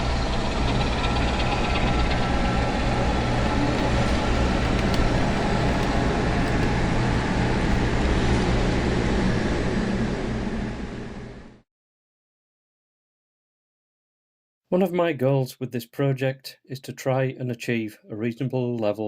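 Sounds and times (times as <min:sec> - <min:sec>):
diesel locomotive engine idling: 0:00.0 - 0:08.0.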